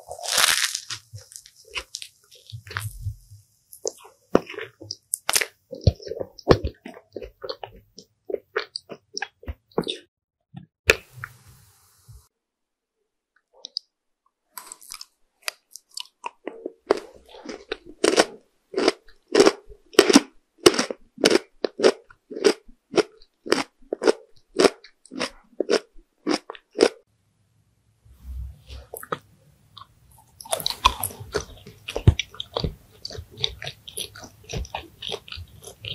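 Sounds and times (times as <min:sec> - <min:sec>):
chewing crunchy food: 0:00.0 - 0:10.1, 0:14.6 - 0:27.0, 0:28.7 - 0:35.9
sharp crack of food: 0:00.1 - 0:02.8.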